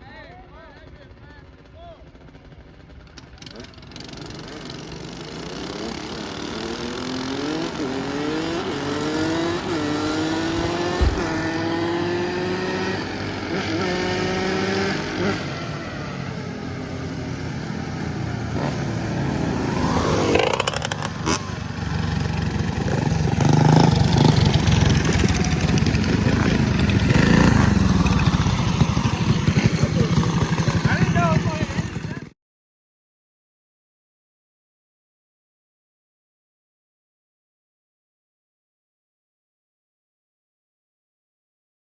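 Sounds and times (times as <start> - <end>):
motorcycle engine accelerating: 1.1 - 32.3
engine running loudly: 2.1 - 32.3
vehicle passing by: 5.5 - 32.3.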